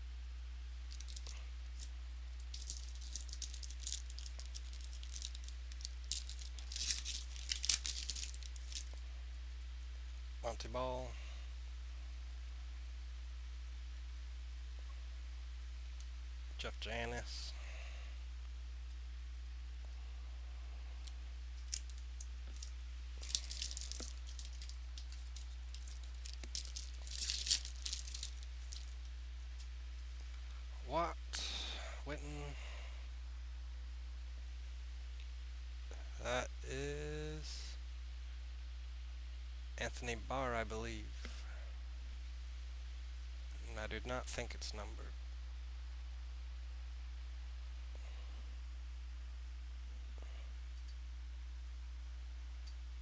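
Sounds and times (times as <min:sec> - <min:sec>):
low electrical hum: 0:00.0 - 0:53.0
cards rustling and crackling: 0:00.9 - 0:09.0, 0:21.6 - 0:29.7.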